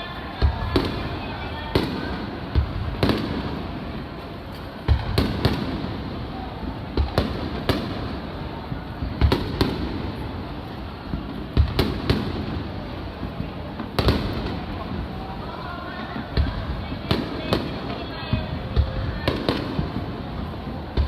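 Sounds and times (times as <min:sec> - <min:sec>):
firework shells booming: 0:04.8 - 0:15.1.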